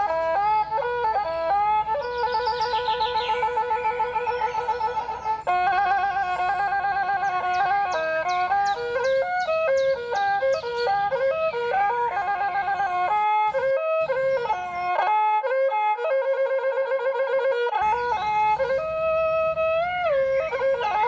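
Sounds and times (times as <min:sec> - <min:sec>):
solo wind instrument melody: 0:00.0 - 0:21.0.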